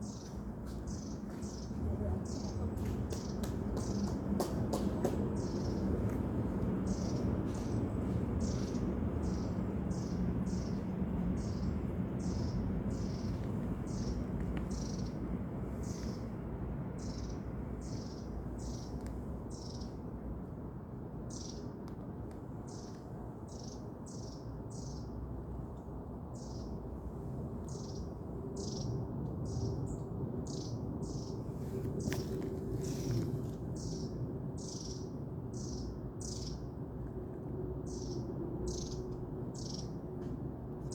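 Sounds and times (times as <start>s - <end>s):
steady low rumble: 0.0s - 23.5s.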